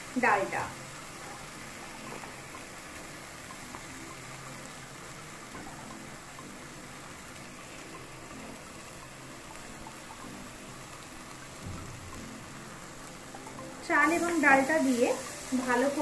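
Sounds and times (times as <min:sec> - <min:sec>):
spices sizzling in a frying pan: 0:00.0 - 0:16.0.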